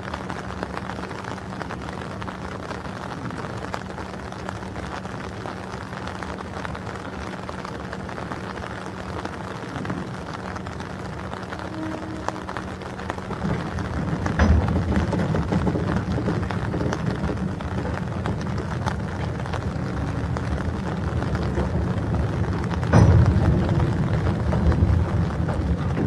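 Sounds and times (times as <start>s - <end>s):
freight train rumble: 0.0s - 26.0s
rain falling: 0.0s - 26.0s
wheels and couplers clanking: 11.6s - 26.0s.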